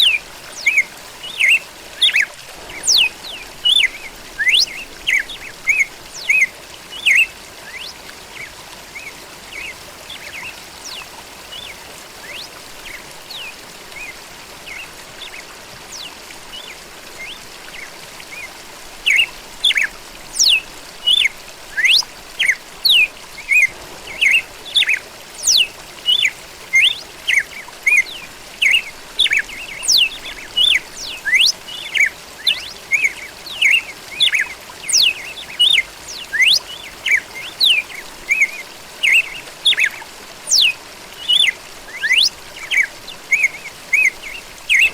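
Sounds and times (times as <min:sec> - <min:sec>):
bird singing: 0:00.0 - 0:08.0, 0:19.1 - 0:39.9, 0:41.3 - 0:44.9
steady background hiss: 0:00.0 - 0:44.9.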